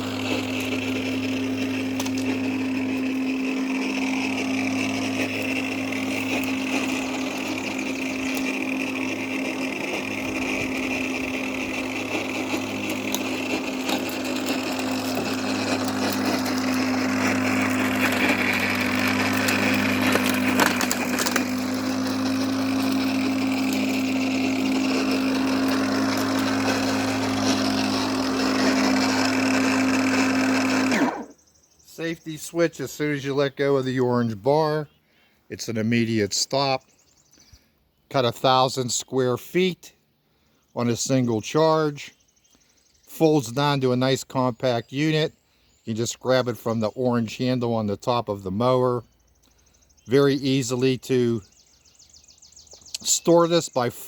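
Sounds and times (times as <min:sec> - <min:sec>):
electric lawn mower running: 0:00.0 - 0:31.4, 0:50.2 - 0:54.0.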